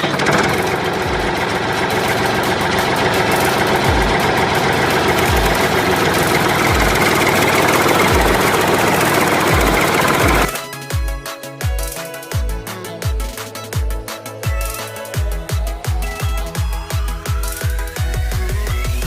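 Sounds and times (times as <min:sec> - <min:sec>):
machine engine running: 0:00.0 - 0:10.6
deep bass drum thumps: 0:03.9 - 0:04.4, 0:05.2 - 0:05.8, 0:06.7 - 0:07.2, 0:08.1 - 0:08.5.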